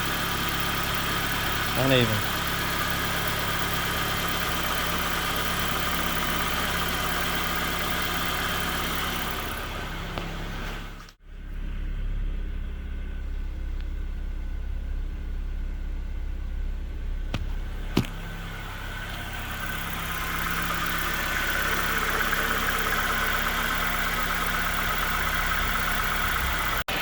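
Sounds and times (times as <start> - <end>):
car engine idling roughly: 0.0 - 27.0.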